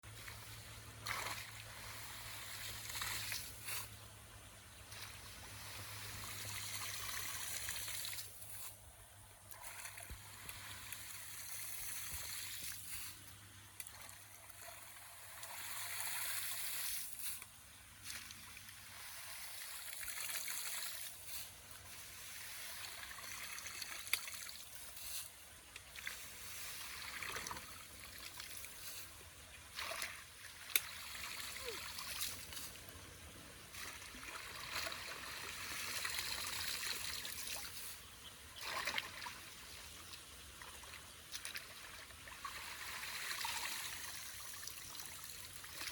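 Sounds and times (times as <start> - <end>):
water trickling through drain: 33.7 - 38.0.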